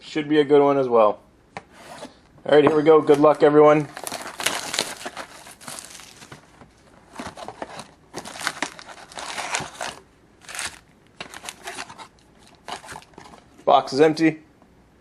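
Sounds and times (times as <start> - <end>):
plastic wrappers crinkling: 2.9 - 13.6.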